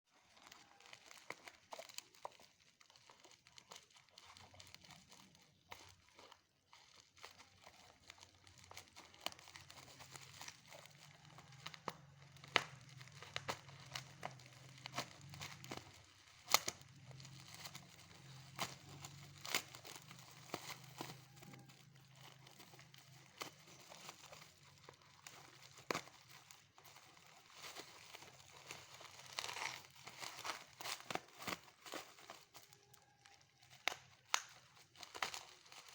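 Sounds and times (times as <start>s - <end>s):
packaging crinkling and tearing: 0.1s - 35.9s
packaging rustle: 0.1s - 35.9s.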